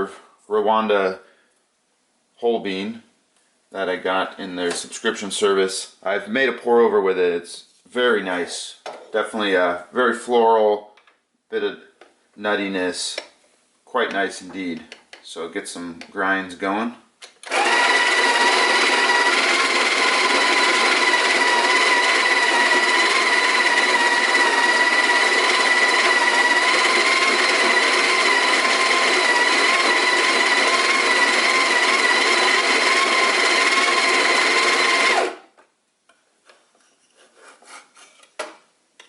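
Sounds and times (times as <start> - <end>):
faint clicks and taps: 14.1 - 15.3
coffee grinder motor whining: 17.4 - 35.4.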